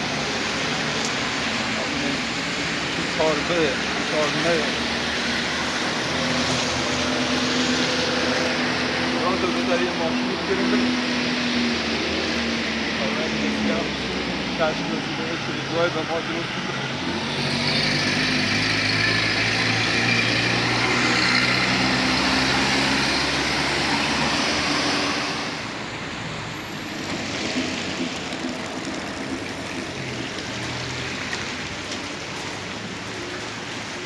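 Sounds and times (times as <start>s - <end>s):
road noise: 0.0s - 34.0s.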